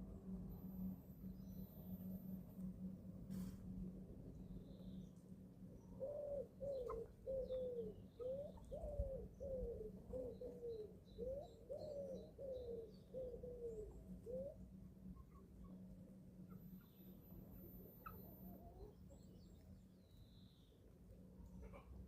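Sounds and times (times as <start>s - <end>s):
faint high chick chirps: 6.4s - 9.7s, 16.5s - 20.7s, 21.4s - 22.0s.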